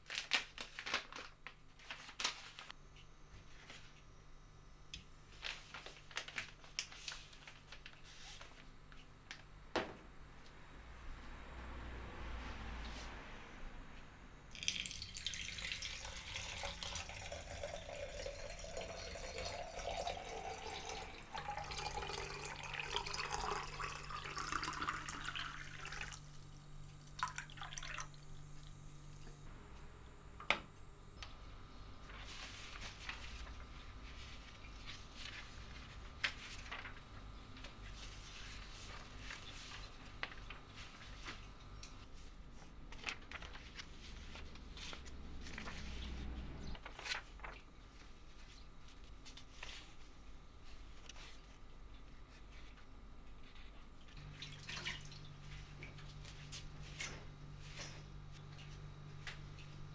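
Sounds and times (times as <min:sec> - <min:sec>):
tap water filling container: 0:14.5 - 0:28.8.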